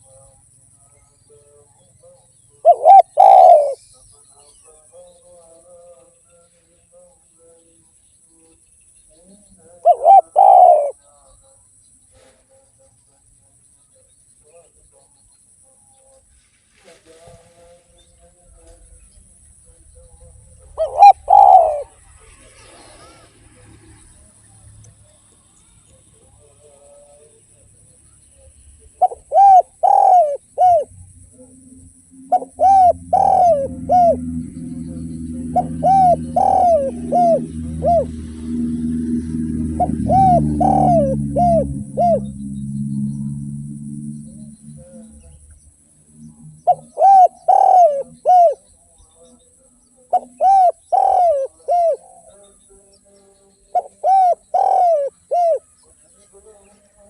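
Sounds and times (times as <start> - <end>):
dove cooing: 2.0 - 3.8, 9.7 - 11.0, 20.0 - 23.7, 28.8 - 48.7, 50.1 - 52.3, 53.7 - 55.7
low hum: 30.4 - 48.6.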